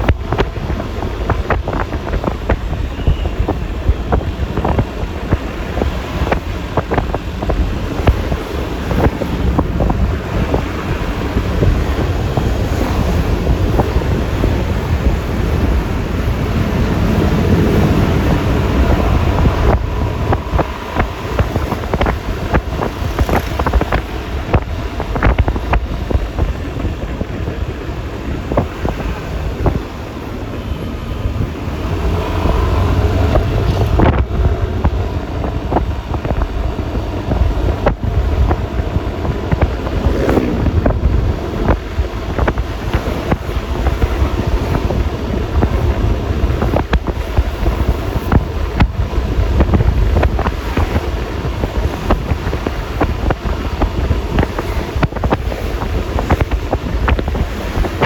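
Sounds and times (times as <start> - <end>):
road noise: 0.0 - 58.0
scooter engine: 0.0 - 58.0
wind buffeting microphone: 0.0 - 58.0.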